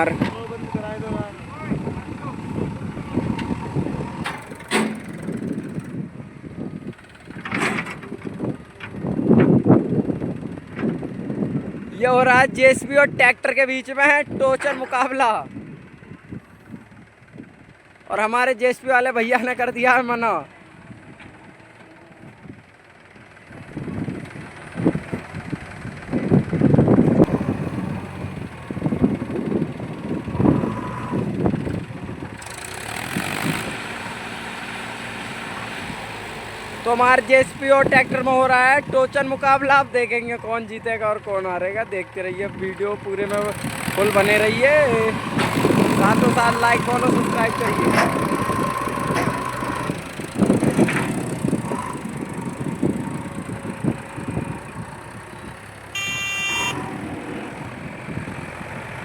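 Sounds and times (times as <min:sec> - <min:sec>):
diesel engines running: 0:00.0 - 0:59.0
knocks and clunks: 0:03.2 - 0:05.8, 0:07.1 - 0:09.6, 0:45.1 - 0:53.8
short high-pitched tone: 0:56.0 - 0:57.0.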